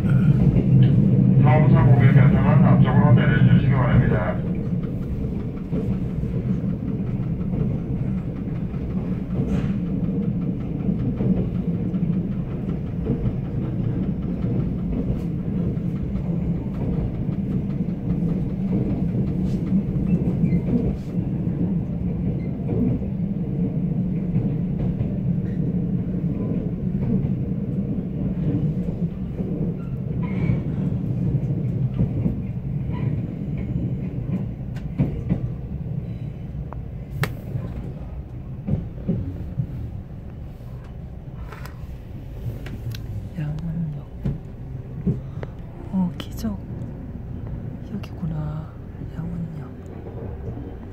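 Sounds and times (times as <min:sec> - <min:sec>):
train running rumble: 0:00.0 - 0:50.9
wheels clicking on track: 0:04.4 - 0:25.9.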